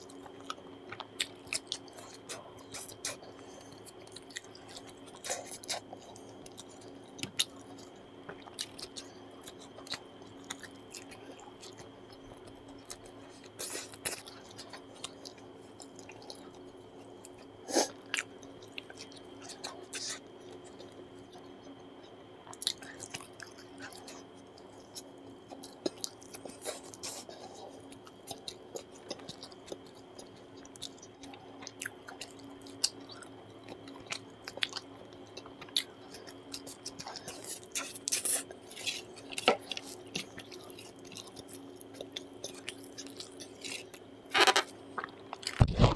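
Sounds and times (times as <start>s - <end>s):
faint hum: 0.0s - 45.9s
man chewing with wet smacks: 0.0s - 45.9s.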